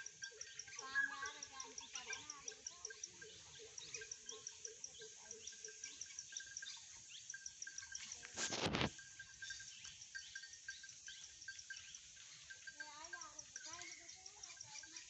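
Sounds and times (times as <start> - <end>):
lower repeated animal call: 0.0 - 9.6.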